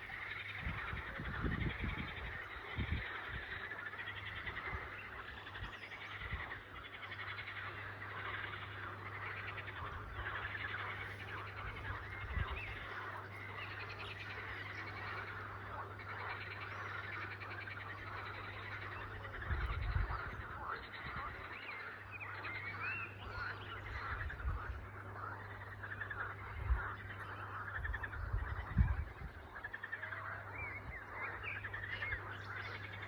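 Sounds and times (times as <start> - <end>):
wind thumps on microphone: 0.0 - 3.6, 11.5 - 13.0, 19.4 - 21.4, 23.9 - 24.9, 27.7 - 29.6
chorus of calling frogs: 0.0 - 33.0
steady low hum: 0.0 - 33.0.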